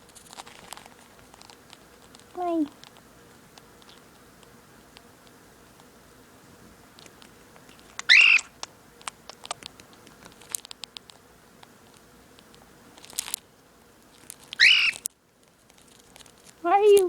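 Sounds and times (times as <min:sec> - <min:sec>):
light clicks and taps: 0:07.0 - 0:13.4
cockatiel growling: 0:08.1 - 0:08.5.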